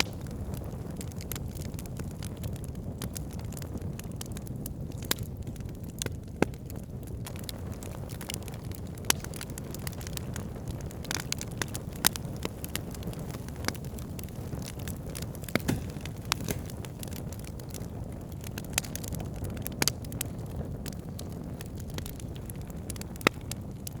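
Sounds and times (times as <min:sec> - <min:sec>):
burning wood crackling and popping: 0:00.0 - 0:24.0
campfire flames rushing: 0:00.0 - 0:24.0.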